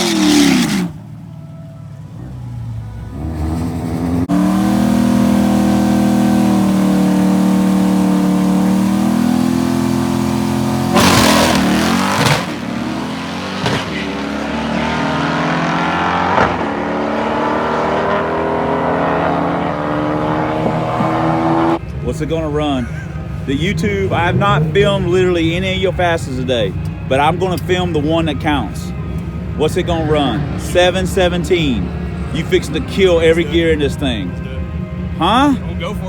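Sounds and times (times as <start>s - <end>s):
drag car engine accelerating: 0.0s - 1.2s, 2.1s - 21.9s
gear changes: 0.0s - 22.0s.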